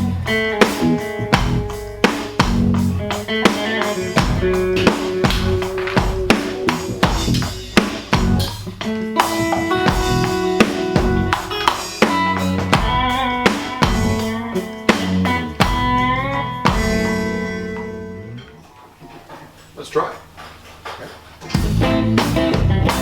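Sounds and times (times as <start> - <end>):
drum hits: 0.0 - 18.0, 21.6 - 23.0
rock band playing: 0.0 - 18.6, 21.5 - 23.0.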